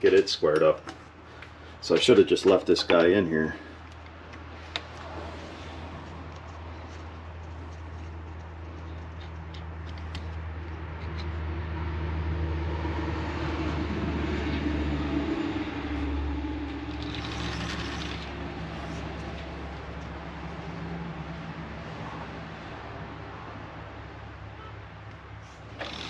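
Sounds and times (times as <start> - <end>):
metal lathe motor humming: 16.7 - 18.7, 25.7 - 26.0.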